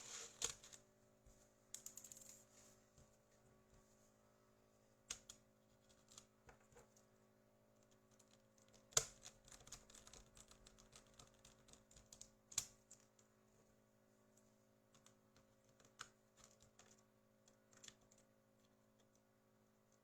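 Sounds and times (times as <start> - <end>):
faint steady hum: 0.0 - 20.0
small ticks: 14.9 - 19.2.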